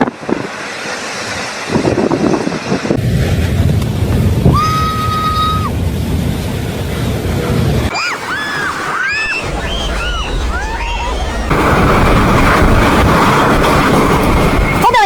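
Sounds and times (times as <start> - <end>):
tornado wind buffeting microphone: 0.0 - 15.0
whistle-like calls: 8.0 - 11.5.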